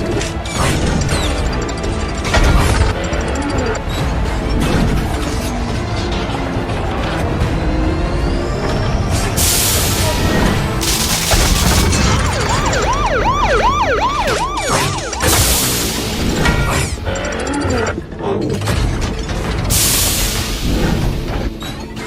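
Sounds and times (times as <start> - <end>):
cinematic trailer music: 10.8 - 13.4
police siren yelping: 10.9 - 16.1.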